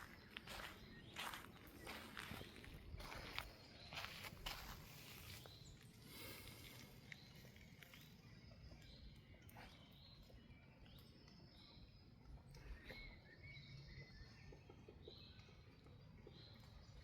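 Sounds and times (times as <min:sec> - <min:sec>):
footsteps on forest floor: 0:00.0 - 0:07.3
distant bird chirps: 0:00.0 - 0:17.0.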